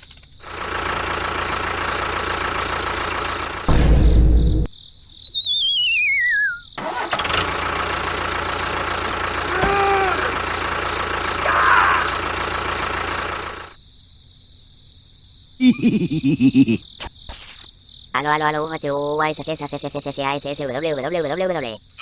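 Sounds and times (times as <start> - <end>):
small engine running: 0.0 - 3.8, 6.8 - 13.8.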